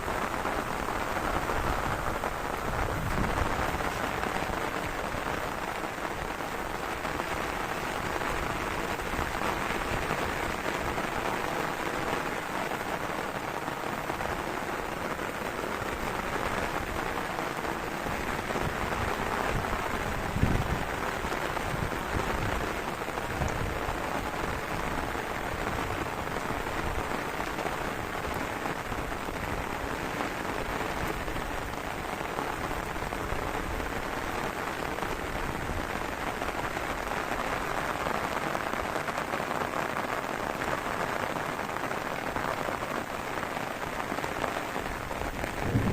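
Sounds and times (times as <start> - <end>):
heavy rain: 0.0 - 45.9
low rumbles: 45.5 - 45.9.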